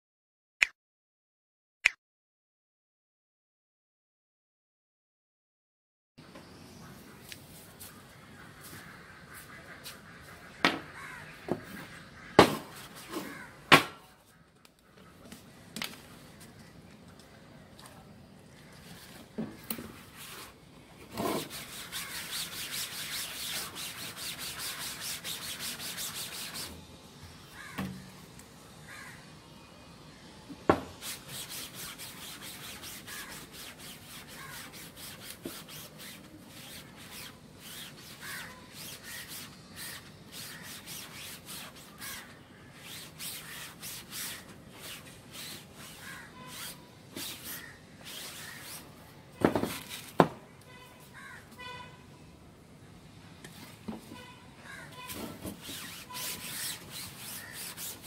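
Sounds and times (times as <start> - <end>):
cloth rag scrubbing mesh: 21.2 - 26.8, 31.0 - 48.9, 55.1 - 58.0.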